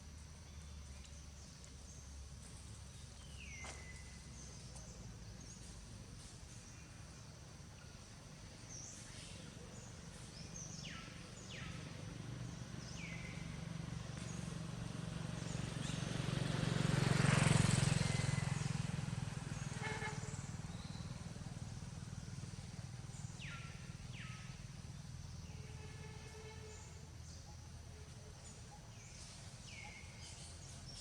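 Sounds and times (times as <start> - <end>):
vehicle engine passing: 9.2 - 26.8.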